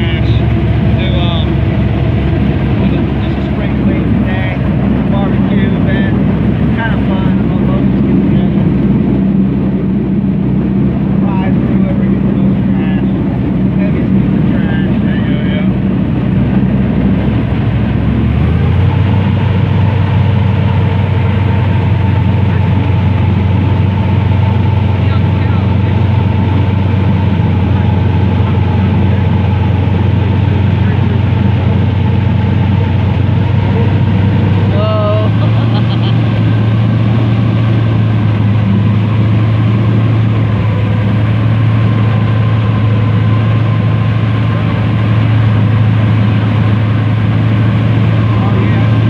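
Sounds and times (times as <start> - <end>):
airboat engine and propeller: 0.0 - 49.0.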